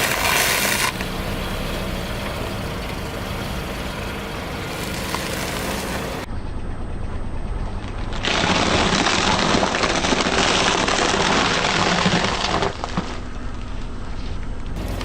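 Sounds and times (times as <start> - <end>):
car engine running: 0.0 - 6.3, 14.8 - 15.0
tyre crunching objects: 4.1 - 6.3.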